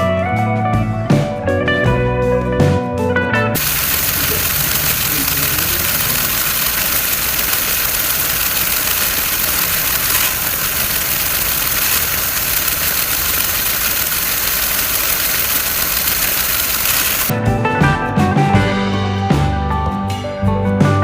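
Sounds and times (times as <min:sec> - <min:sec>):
remote-control toy vehicle running: 0:03.6 - 0:17.3.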